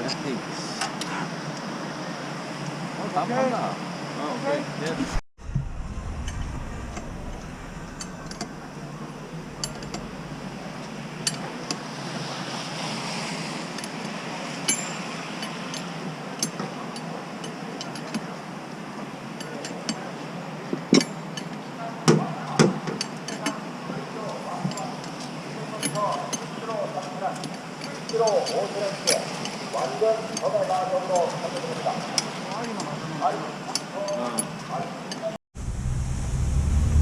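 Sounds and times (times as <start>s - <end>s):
excavator running: 5.4s - 11.4s, 35.6s - 37.0s
metallic clinks and knocks: 6.0s - 11.4s.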